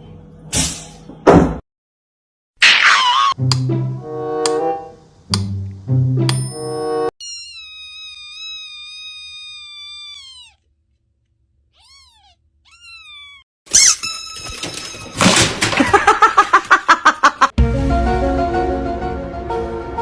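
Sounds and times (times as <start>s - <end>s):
cat meowing: 7.2s - 10.7s, 11.7s - 13.5s.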